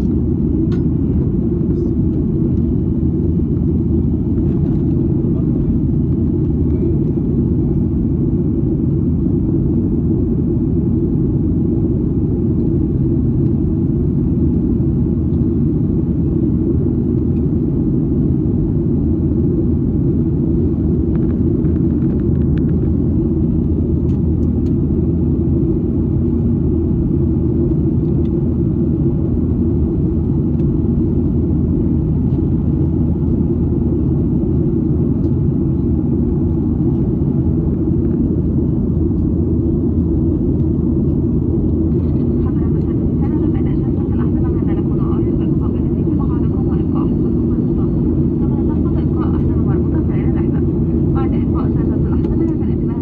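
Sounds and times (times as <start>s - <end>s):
airliner cabin rumble: 0.0s - 53.0s.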